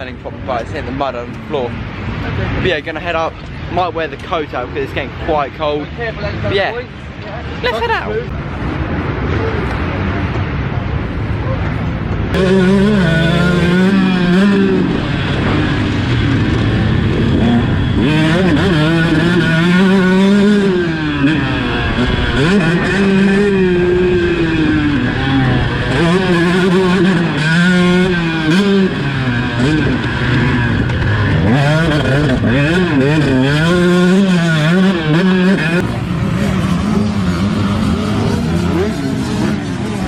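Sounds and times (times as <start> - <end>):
motocross bike engine revving: 12.2 - 40.0.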